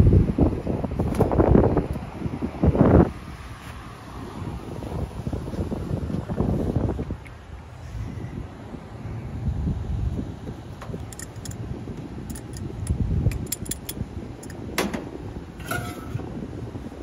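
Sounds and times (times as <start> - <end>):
wind buffeting microphone: 0.0 - 17.0
metallic clinks of tools: 11.0 - 11.6.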